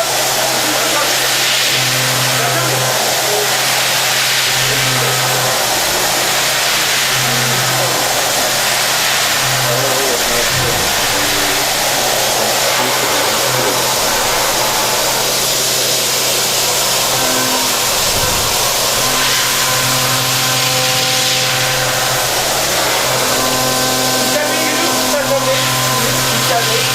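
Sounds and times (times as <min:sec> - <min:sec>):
machining center running: 0:00.0 - 0:26.9.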